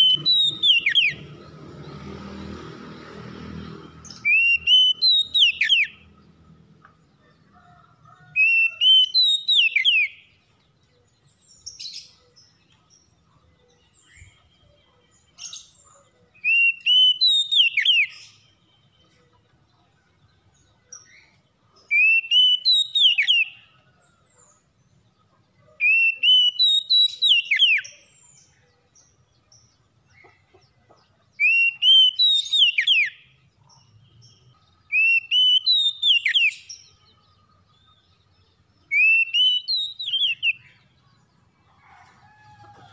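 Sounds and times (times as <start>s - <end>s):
soft bird calls: 0.0s - 2.1s.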